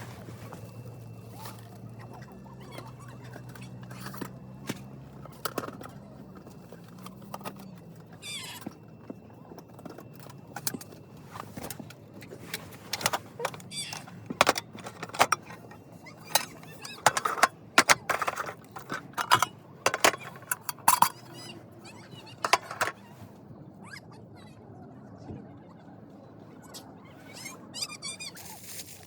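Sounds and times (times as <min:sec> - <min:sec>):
small hard objects clinking: 0:00.5 - 0:21.5, 0:22.4 - 0:23.0.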